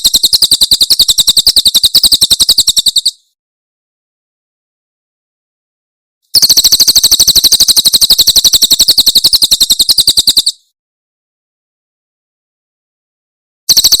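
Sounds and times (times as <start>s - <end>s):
bird trilling: 0.0s - 3.3s, 6.3s - 10.6s.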